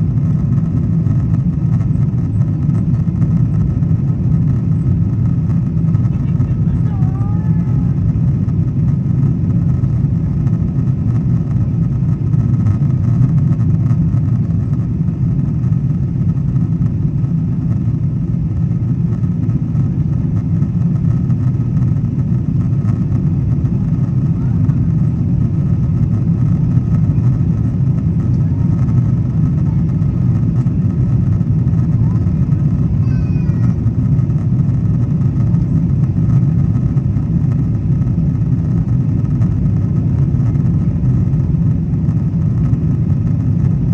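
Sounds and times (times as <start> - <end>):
airplane engines rumbling in cabin: 0.0 - 43.9.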